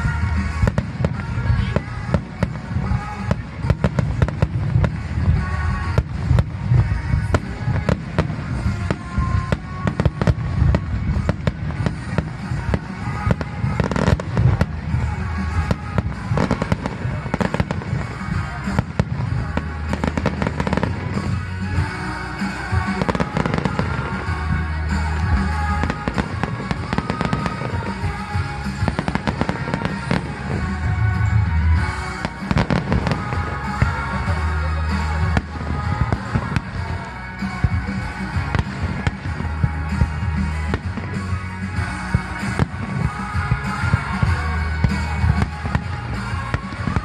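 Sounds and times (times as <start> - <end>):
fireworks bursting and crackling: 0.0 - 47.0
music playing: 0.0 - 47.0.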